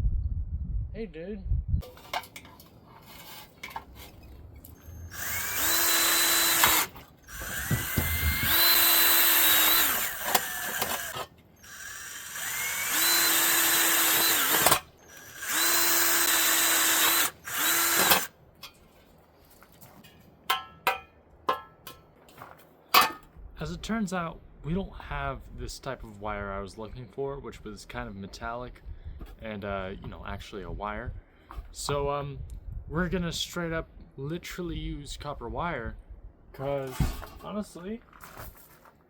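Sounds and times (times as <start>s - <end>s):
power drill whining: 4.7s - 18.3s.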